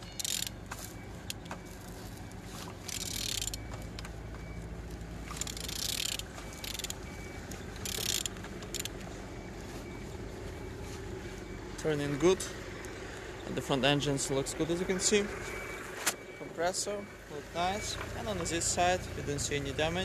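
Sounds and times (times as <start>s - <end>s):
wrench ratcheting and scraping: 0.0s - 1.5s, 2.7s - 3.8s, 5.2s - 7.0s, 7.8s - 9.0s.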